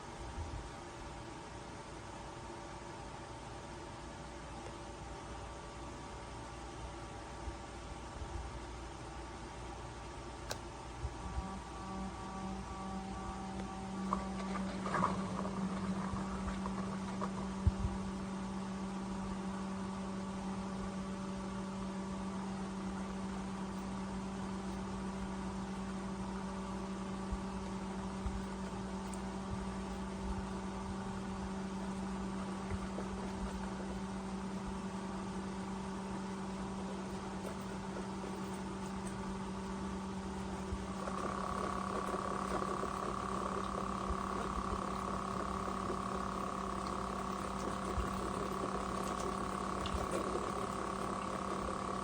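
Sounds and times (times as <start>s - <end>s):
steady hum: 0.0s - 52.0s
faint clicks: 40.9s - 52.0s.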